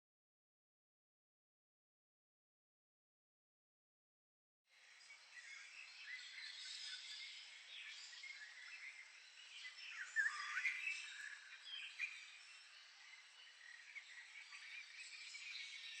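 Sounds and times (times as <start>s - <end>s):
steady outdoor hiss: 4.7s - 16.0s
birds chirping: 5.0s - 16.0s.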